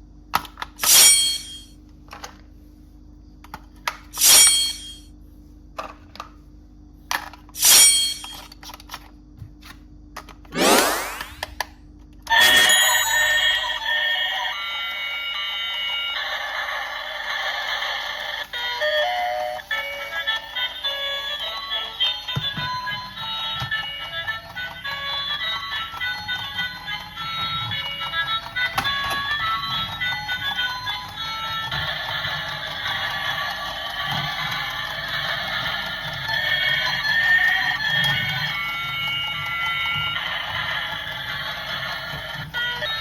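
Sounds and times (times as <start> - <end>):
tinny electronic toy melody: 12.3 - 43.0.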